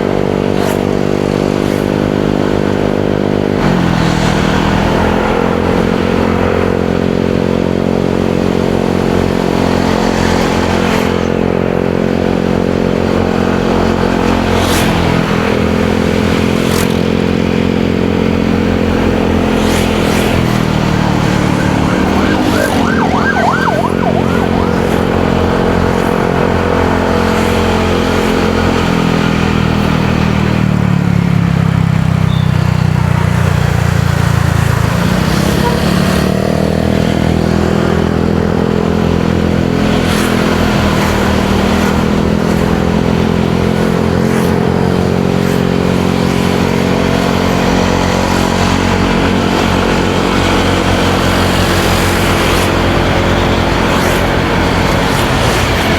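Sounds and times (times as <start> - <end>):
road and traffic noise: 0.0 - 55.9
warbling high tone: 21.0 - 26.4.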